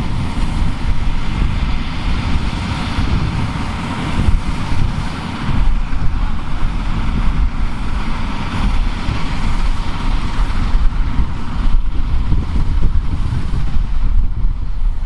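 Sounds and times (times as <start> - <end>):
farm machinery engine running: 0.0 - 15.0
wind buffeting microphone: 0.0 - 15.0.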